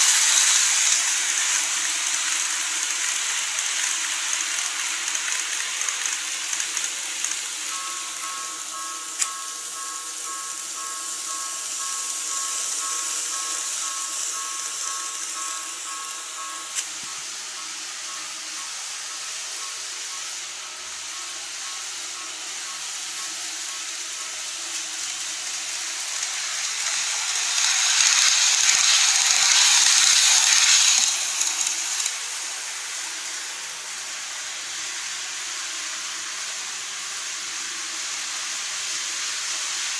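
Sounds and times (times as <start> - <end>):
model train whirring on track: 0.0 - 39.9
thin high whine: 7.4 - 24.5.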